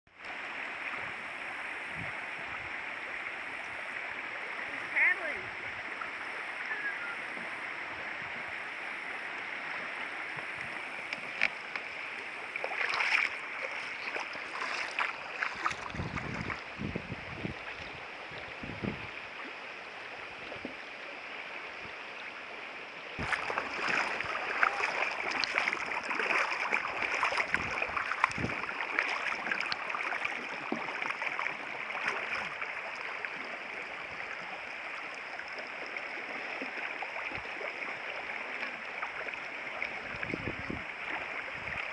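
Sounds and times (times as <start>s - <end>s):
river water splashing: 0.1s - 41.9s.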